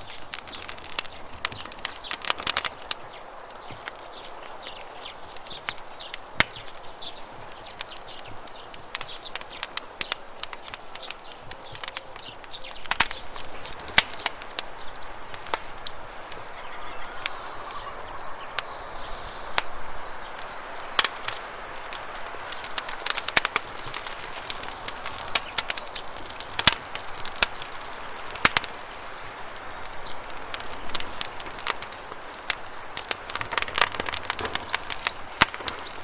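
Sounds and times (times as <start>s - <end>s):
campfire crackling and popping: 0.0s - 36.0s.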